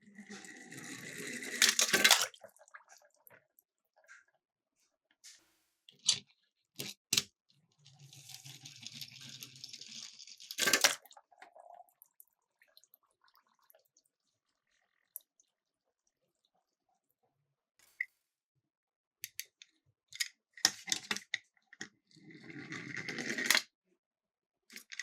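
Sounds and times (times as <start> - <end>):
toy car rolling down slope: 0.0 - 2.2, 7.9 - 11.0, 22.3 - 23.7.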